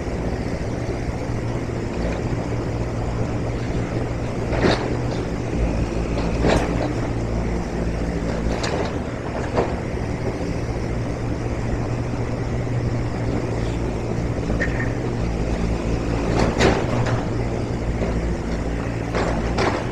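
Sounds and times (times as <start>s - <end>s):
low engine-like hum: 0.0s - 19.9s.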